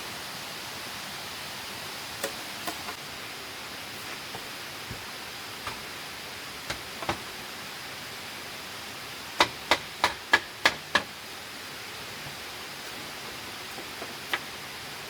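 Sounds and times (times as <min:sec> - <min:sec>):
hand tool knocking: 0:06.7 - 0:07.3, 0:09.4 - 0:11.1.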